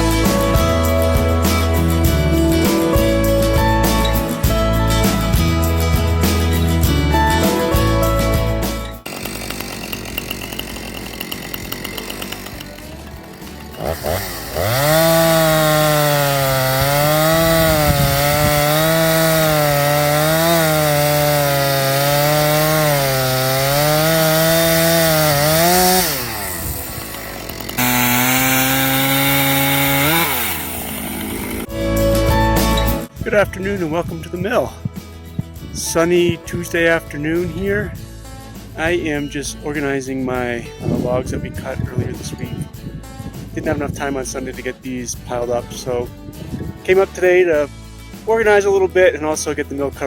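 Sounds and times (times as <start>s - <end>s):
background music: 0.0s - 50.0s
chainsaw cutting at high revs: 9.0s - 31.7s.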